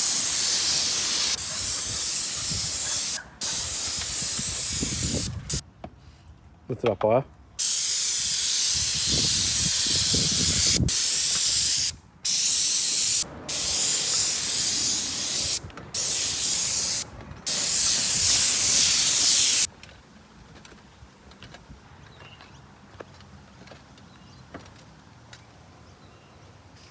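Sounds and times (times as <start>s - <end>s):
spray gun hissing: 0.0s - 5.6s, 7.6s - 19.7s.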